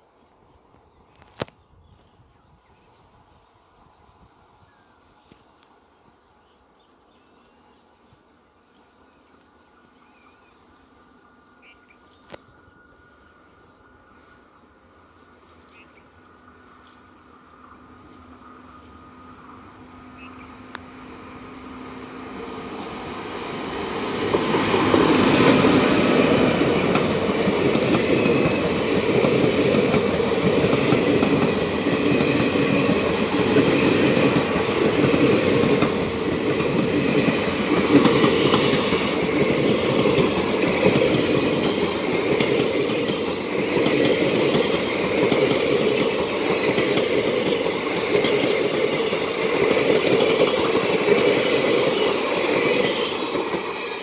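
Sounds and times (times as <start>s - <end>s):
train passing at speed: 0.0s - 54.0s.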